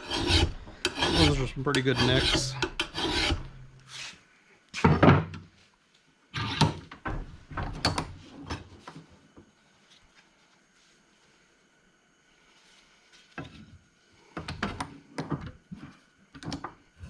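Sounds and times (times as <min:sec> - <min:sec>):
metal knocks and scrapes: 0:00.1 - 0:03.8.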